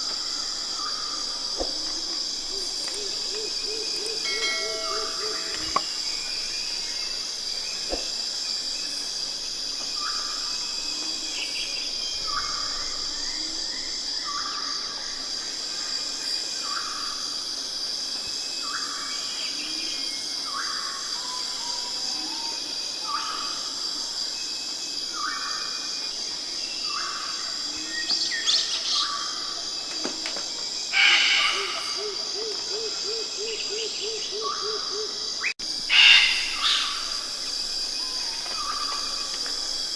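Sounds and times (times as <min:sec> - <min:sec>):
bird calling: 0:00.0 - 0:08.1, 0:26.9 - 0:39.7
insects droning: 0:00.0 - 0:39.9.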